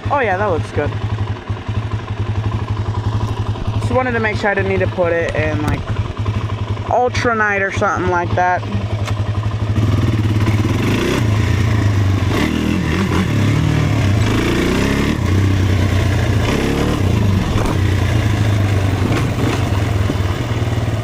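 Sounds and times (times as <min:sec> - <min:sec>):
off-road vehicle engine revving: 0:07.1 - 0:21.0.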